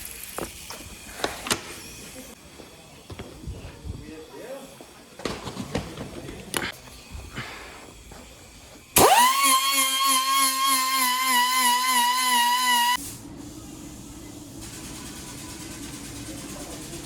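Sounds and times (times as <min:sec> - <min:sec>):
air tool whining: 0:06.9 - 0:13.0.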